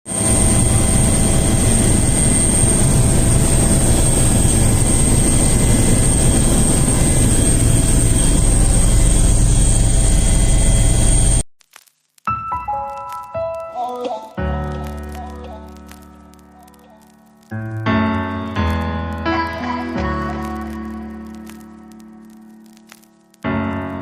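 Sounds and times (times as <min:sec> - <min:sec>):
turbine whine: 0:00.1 - 0:11.4
helicopter rotor rumbling: 0:00.2 - 0:11.4.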